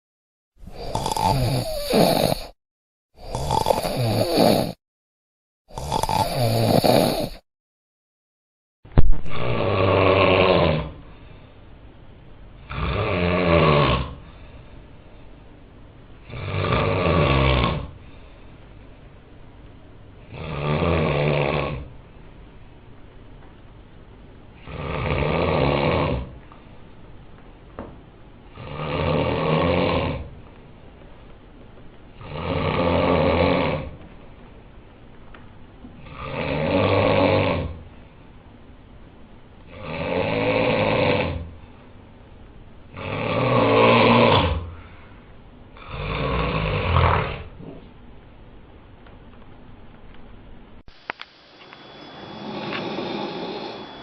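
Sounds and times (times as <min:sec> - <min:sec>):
person snoring: 0:00.6 - 0:02.6, 0:03.2 - 0:04.8, 0:05.7 - 0:07.5, 0:09.3 - 0:11.2, 0:12.6 - 0:14.6, 0:16.3 - 0:18.0, 0:20.3 - 0:21.9, 0:24.6 - 0:26.3, 0:28.5 - 0:30.3, 0:32.2 - 0:33.9, 0:36.0 - 0:37.8, 0:39.7 - 0:41.5, 0:42.9 - 0:44.9, 0:45.8 - 0:47.8, 0:51.8 - 0:54.0
faint breathing: 0:44.7 - 0:45.4, 0:52.1 - 0:54.0.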